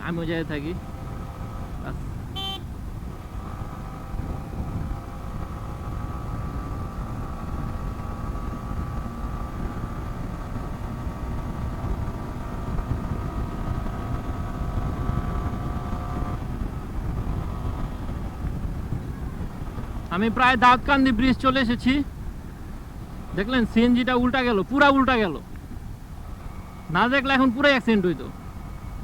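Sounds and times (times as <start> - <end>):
motorcycle engine running: 0.0 - 29.0
wind rumble on microphone: 0.0 - 29.0.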